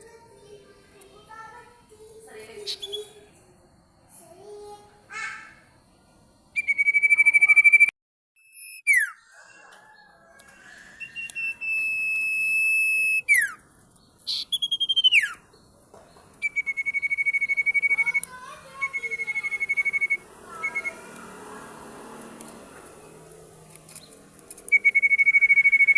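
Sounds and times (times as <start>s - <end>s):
songbird singing shrill trills: 2.6s - 3.2s, 6.6s - 21.2s, 23.9s - 25.9s.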